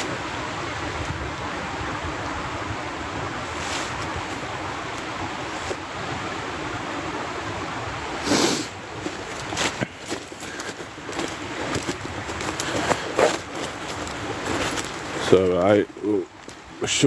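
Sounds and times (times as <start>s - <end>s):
floodwater rushing: 0.0s - 17.0s
wind: 0.0s - 17.0s
loud rustle: 3.3s - 5.9s, 8.2s - 16.2s
footsteps through wet ground: 3.4s - 5.9s, 8.4s - 16.7s.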